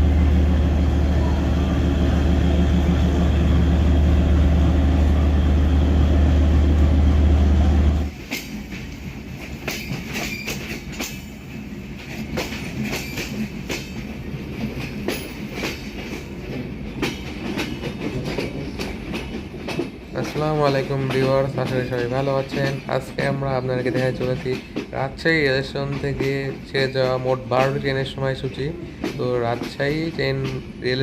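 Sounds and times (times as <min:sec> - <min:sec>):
locomotive engine drone: 0:00.0 - 0:08.1
train wheels clicking over rail joints: 0:08.1 - 0:31.0.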